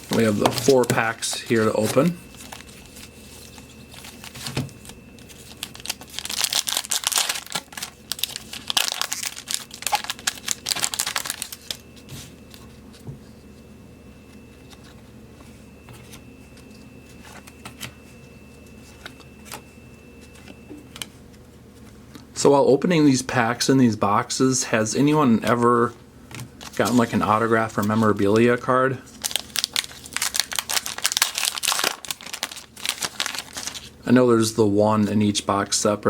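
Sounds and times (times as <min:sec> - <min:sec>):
foil wrapper tearing and crinkling: 0:00.0 - 0:11.8, 0:29.1 - 0:33.9.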